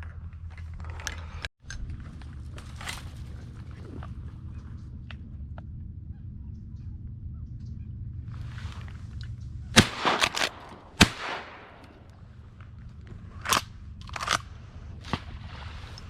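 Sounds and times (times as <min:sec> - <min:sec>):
wind rumble on microphone: 0:00.0 - 0:09.8, 0:10.5 - 0:16.0
shotgun shots: 0:09.8 - 0:12.2.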